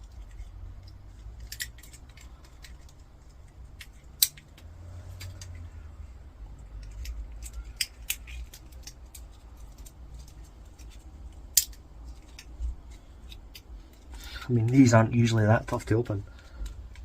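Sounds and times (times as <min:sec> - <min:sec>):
hand tools clicking and snapping: 0:00.0 - 0:05.6, 0:06.6 - 0:14.4.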